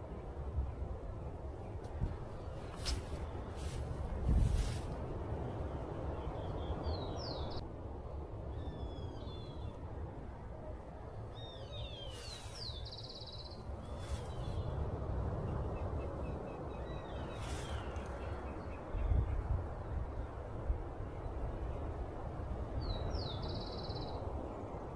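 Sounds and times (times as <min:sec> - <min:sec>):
brief crackles: 0:02.7 - 0:03.8
small birds singing and calling: 0:11.4 - 0:14.8.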